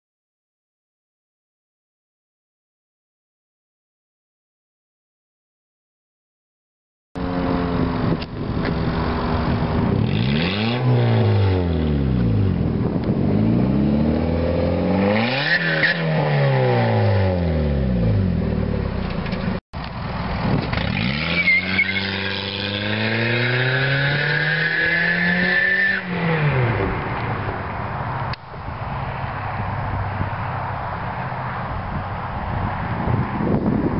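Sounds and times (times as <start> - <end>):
car engine revving: 7.2 - 19.6, 20.4 - 28.4.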